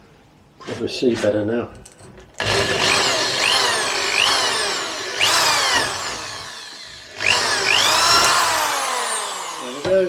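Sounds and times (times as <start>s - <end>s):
electric drill motor whine: 2.4s - 10.0s.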